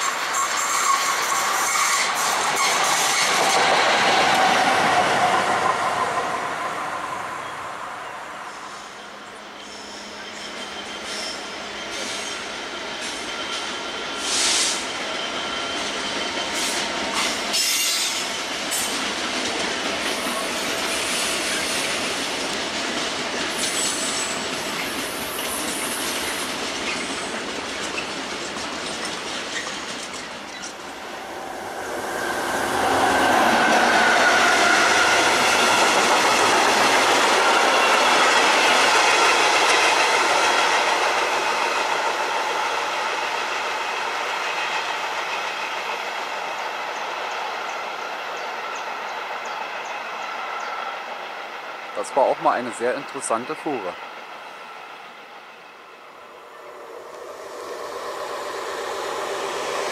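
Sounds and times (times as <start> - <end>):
freight wagons rolling on rails: 15.6 - 31.2
wheels squealing: 23.5 - 39.5.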